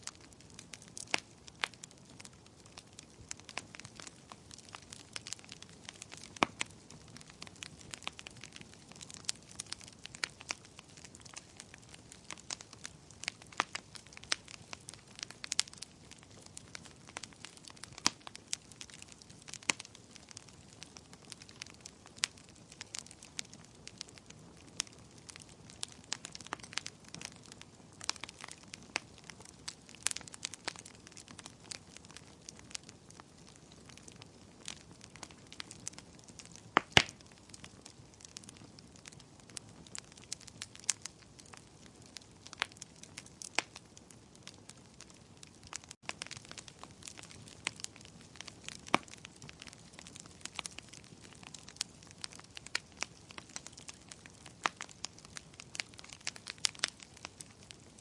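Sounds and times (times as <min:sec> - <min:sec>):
faint steady hiss: 0:00.0 - 0:30.5
wood fire crackling and popping: 0:00.0 - 0:58.0.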